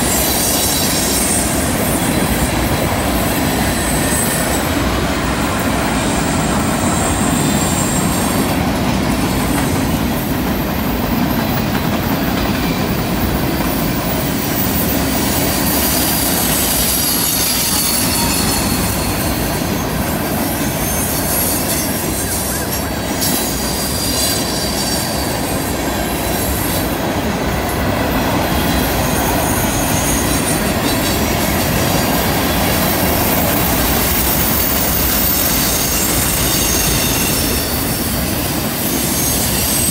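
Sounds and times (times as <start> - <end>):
high-pitched wheel squeal: 0.0 - 2.4, 5.9 - 8.6, 14.1 - 26.9, 28.5 - 39.9
train wheels rumbling on rail: 0.0 - 39.9.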